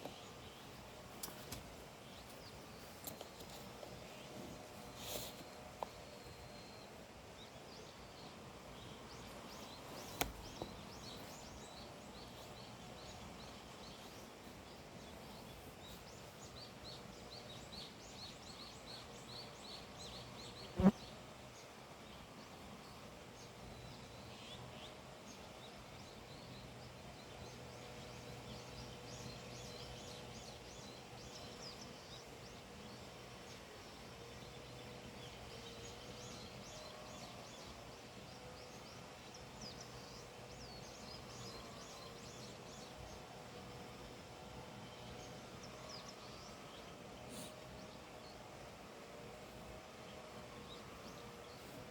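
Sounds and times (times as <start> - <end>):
low background hiss: 0.0 - 51.9
small birds chirping: 0.0 - 51.9
faint click: 10.0 - 10.7.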